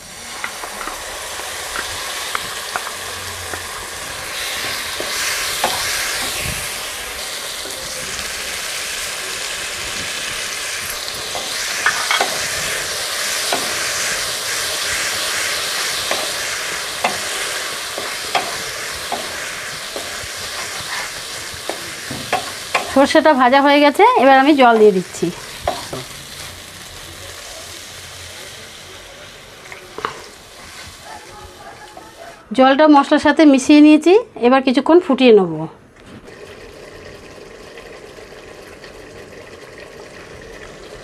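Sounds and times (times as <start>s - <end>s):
paste sizzling in oil: 0.0s - 32.4s
wooden spatula scraping a pan: 15.4s - 23.0s, 30.0s - 32.3s.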